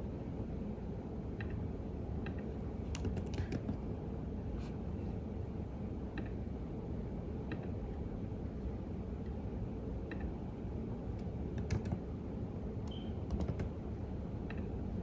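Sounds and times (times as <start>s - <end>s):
low background hum: 0.0s - 15.0s
keyboard key clicks: 2.9s - 3.8s, 11.6s - 12.0s, 12.9s - 13.7s.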